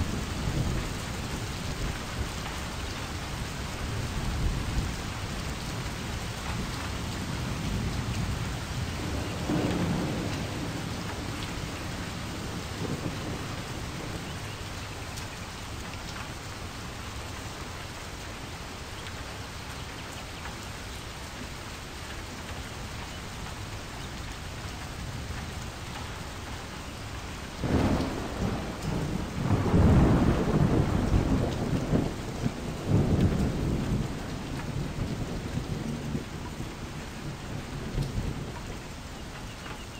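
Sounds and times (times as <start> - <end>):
steady rain: 0.0 - 39.9
thunder rumbling: 5.9 - 15.2, 27.6 - 38.9.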